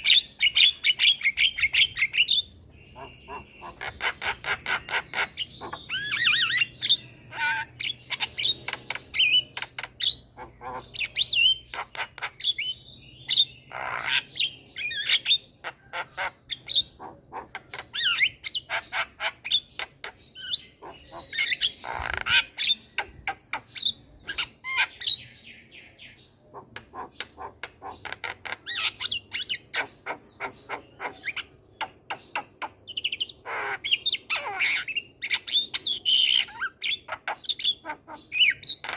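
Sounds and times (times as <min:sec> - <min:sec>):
myna bird singing: 0:00.0 - 0:38.9.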